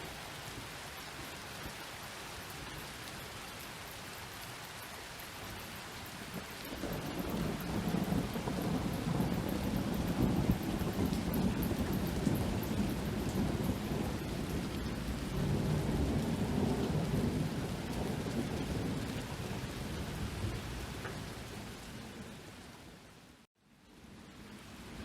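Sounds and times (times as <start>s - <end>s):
steady rain: 0.0s - 25.0s
low rumble of thunder: 6.2s - 23.0s.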